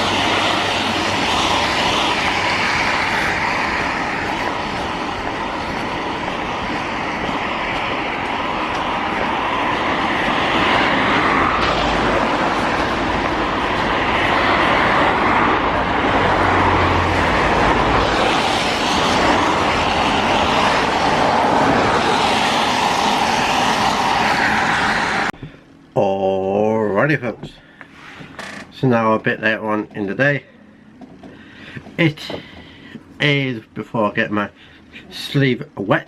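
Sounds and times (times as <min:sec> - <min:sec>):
moving vehicle rushing noise: 0:00.0 - 0:25.4
low hum: 0:00.0 - 0:26.0.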